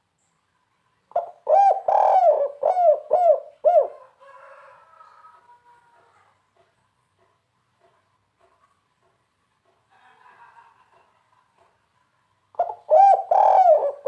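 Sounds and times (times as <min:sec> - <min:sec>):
dove cooing: 0:01.1 - 0:04.2, 0:12.6 - 0:14.0.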